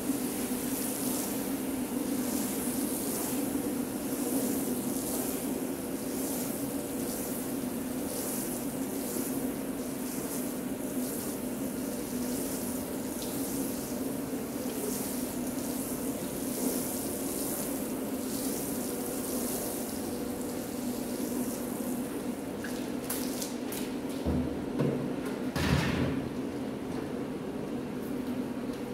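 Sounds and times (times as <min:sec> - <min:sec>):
water spraying onto rug: 0:00.0 - 0:21.7.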